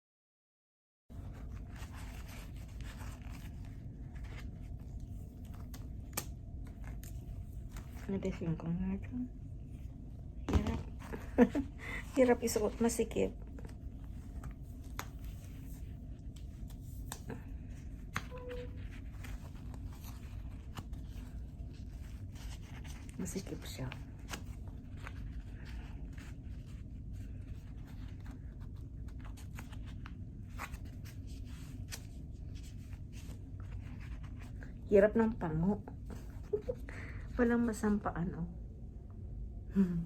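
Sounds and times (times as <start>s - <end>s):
handling noise rustling and scraping: 1.1s - 6.0s
face mask rustling: 1.1s - 8.1s, 9.8s - 34.9s
steady low hum: 1.1s - 40.0s
steady low rumble: 1.1s - 40.0s.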